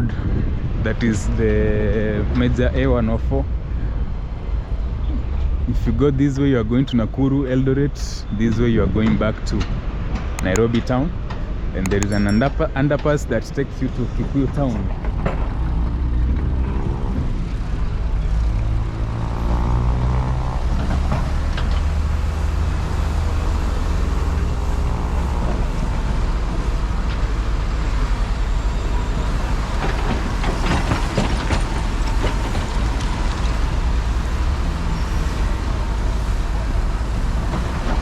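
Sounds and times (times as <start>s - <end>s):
highway traffic rumble: 0.0s - 38.0s
large vehicle engine passing: 14.3s - 38.0s.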